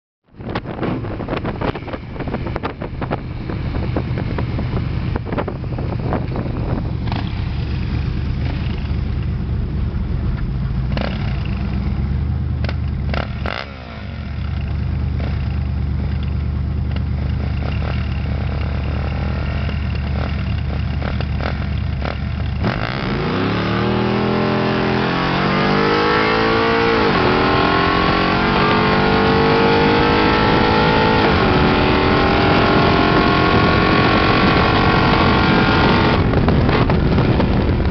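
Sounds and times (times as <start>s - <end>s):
car engine accelerating: 22.0s - 37.9s.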